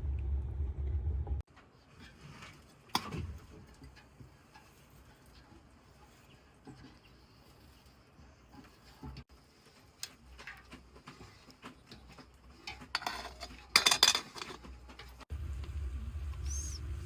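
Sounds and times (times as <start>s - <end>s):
low steady rumble: 0.0s - 1.5s, 14.8s - 17.0s
dishes and utensils clattering: 10.3s - 15.2s.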